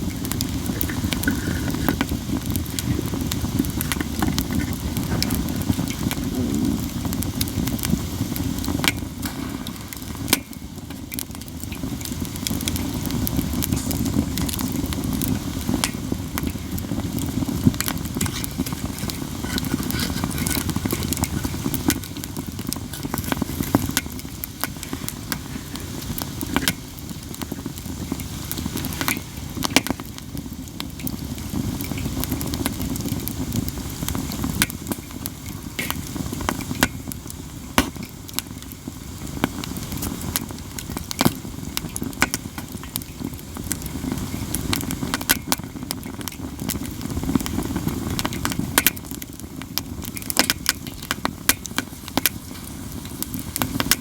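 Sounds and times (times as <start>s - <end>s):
campfire crackling: 0.0s - 54.0s
low fire rumble: 0.0s - 54.0s
sharp loud fire pops: 8.5s - 23.2s, 37.7s - 38.2s.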